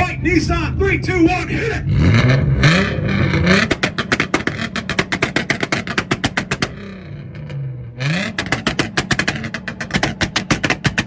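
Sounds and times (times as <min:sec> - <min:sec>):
car engine on rev limiter: 0:00.0 - 0:11.0
exhaust popping and crackling: 0:00.0 - 0:11.0.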